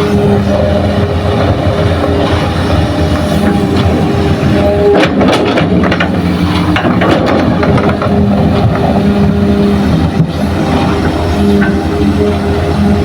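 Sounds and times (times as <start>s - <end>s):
diesel machinery running: 0.0s - 13.0s
clattering metal knocks: 5.0s - 8.8s.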